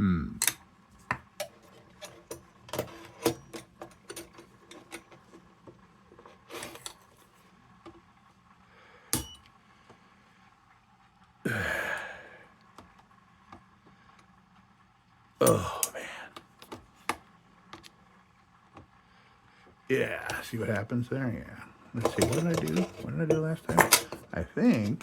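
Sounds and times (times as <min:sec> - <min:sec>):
person sighing: 0:11.4 - 0:12.5, 0:15.4 - 0:16.4.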